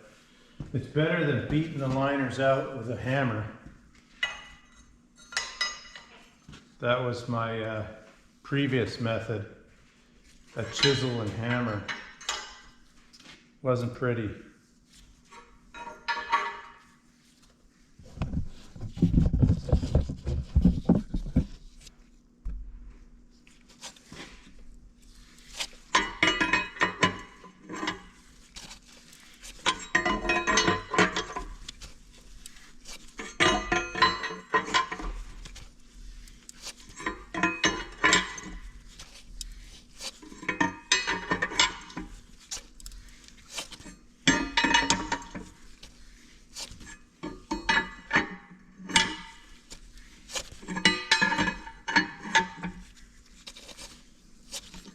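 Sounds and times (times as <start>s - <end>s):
metal tools clinking and rattling: 10.6s - 12.8s, 15.4s - 16.8s, 25.8s - 35.7s, 36.5s - 45.9s, 46.6s - 54.9s.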